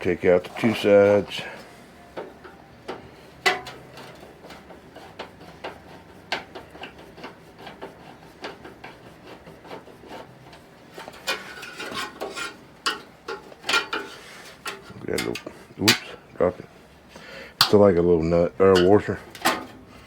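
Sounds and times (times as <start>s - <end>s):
metallic clicks and scraping: 2.2s - 16.2s.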